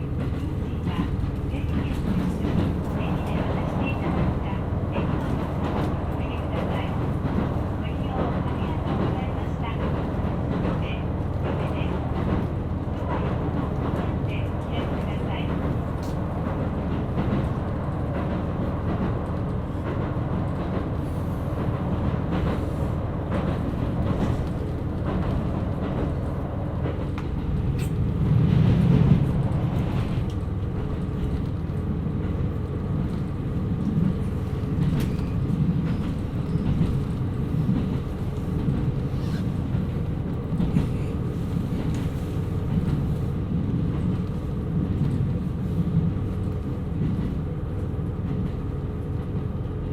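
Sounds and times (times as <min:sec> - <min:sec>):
diesel railcar rumbling: 0:00.0 - 0:49.9.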